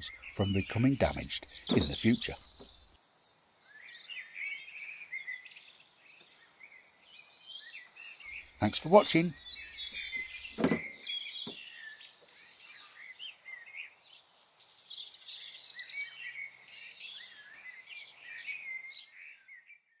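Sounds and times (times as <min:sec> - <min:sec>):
birds chirping and whistling: 0:00.0 - 0:03.1, 0:03.7 - 0:13.9
knock: 0:01.7 - 0:02.0.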